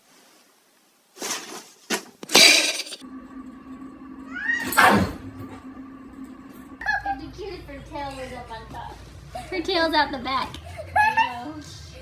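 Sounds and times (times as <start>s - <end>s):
electrical hum: 3.0s - 12.0s
cat rising call: 4.2s - 5.2s.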